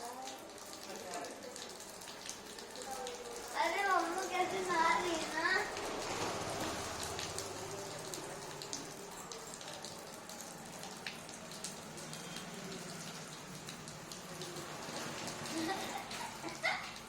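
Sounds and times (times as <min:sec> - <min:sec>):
water pattering and splashing: 0:00.0 - 0:17.0.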